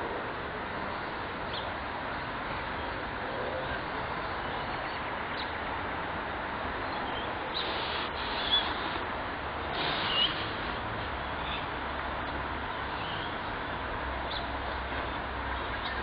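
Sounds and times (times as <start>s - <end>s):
steady background noise: 0.0s - 16.0s
high bird chirps: 7.1s - 8.9s, 9.9s - 10.5s.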